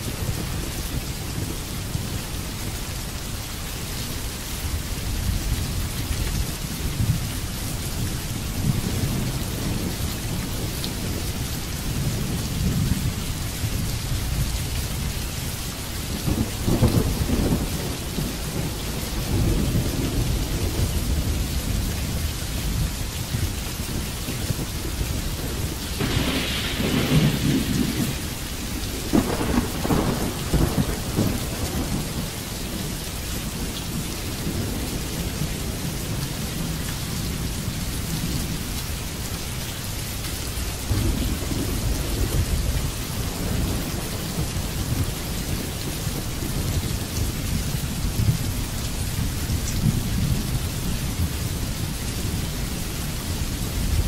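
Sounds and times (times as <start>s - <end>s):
heavy rain: 0.0s - 54.0s
thunder rumbling: 8.0s - 38.8s, 40.8s - 52.8s.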